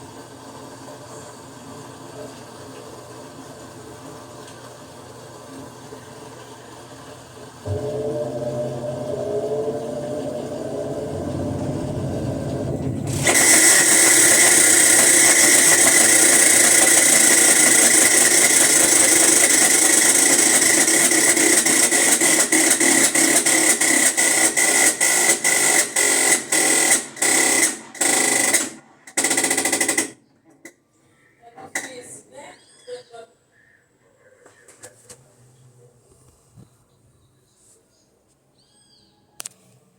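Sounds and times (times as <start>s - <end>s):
washing machine spinning: 0.0s - 30.2s
rasping whir with high whine: 7.6s - 30.0s.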